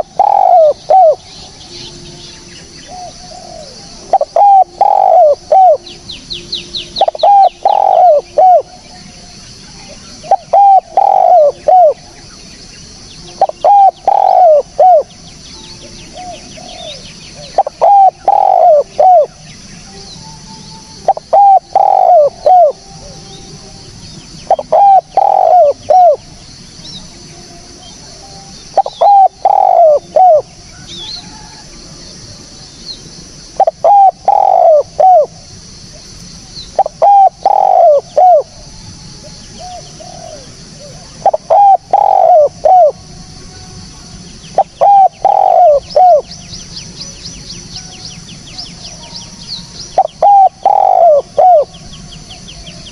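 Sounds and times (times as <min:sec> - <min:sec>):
dove cooing: 0:00.0 - 0:12.4, 0:13.2 - 0:27.1, 0:27.9 - 0:32.5, 0:33.5 - 0:43.7, 0:44.5 - 0:46.4, 0:48.6 - 0:52.9.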